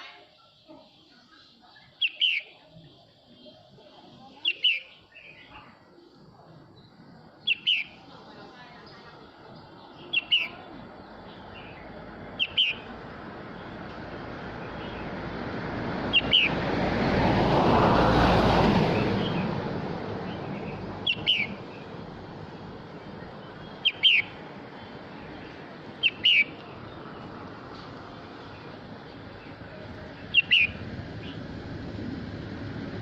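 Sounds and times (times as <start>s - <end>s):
bulbul calling: 2.0s - 2.7s, 7.4s - 8.0s, 9.9s - 13.0s, 16.1s - 16.7s, 20.2s - 21.9s, 23.2s - 27.3s, 29.4s - 31.4s
broad rushing noise: 6.3s - 33.0s.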